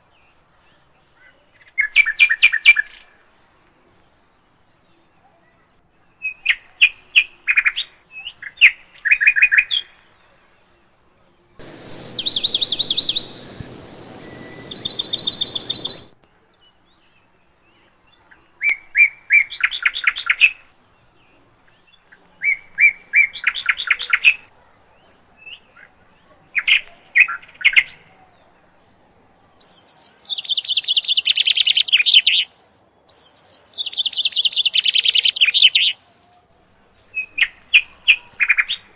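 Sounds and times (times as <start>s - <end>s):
songbird trilling: 11.6s - 16.2s
steady hiss: 11.6s - 16.2s.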